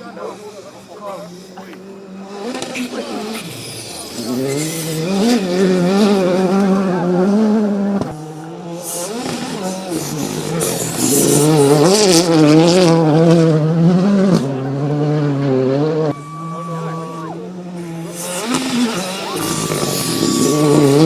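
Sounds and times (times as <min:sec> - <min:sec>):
rally car engine at high revs: 0:00.0 - 0:21.0.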